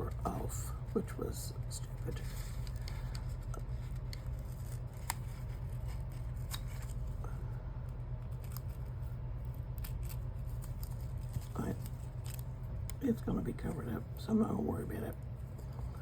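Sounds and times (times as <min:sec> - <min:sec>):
steady low hum: 0:00.0 - 0:16.0
paper clicks and scuffs: 0:01.9 - 0:07.1.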